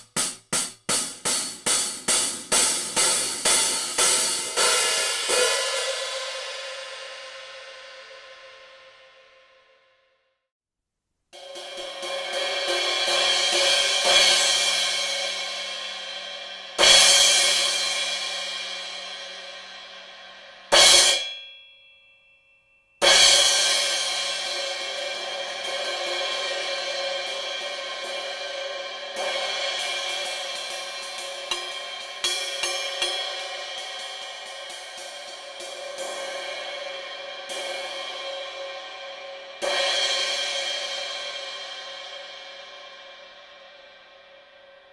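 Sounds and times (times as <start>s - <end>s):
cymbal ringing: 20.7s - 41.0s.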